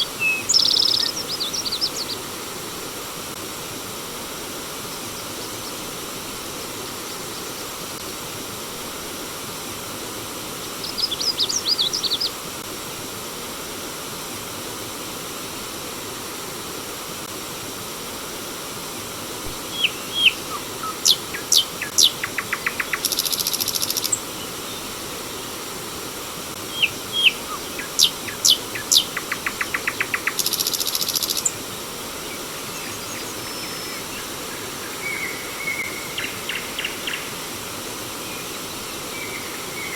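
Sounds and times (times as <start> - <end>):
bird singing: 0.0 - 2.2, 19.7 - 24.9, 26.7 - 31.5, 32.3 - 37.4, 38.3 - 39.9
flowing water: 0.0 - 39.9.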